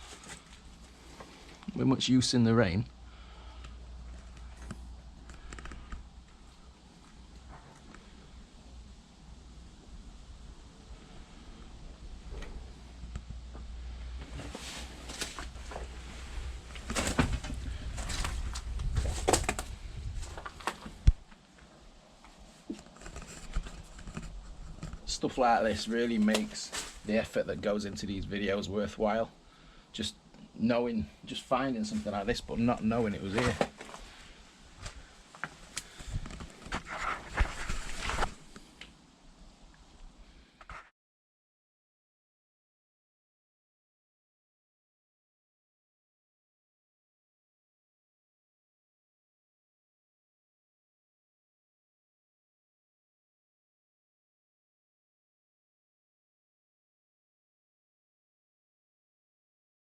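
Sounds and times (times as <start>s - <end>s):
rustling and crunching vegetation: 0.0s - 1.9s, 3.0s - 29.0s, 31.3s - 39.0s
footsteps through brush: 14.8s - 21.2s, 33.2s - 38.5s.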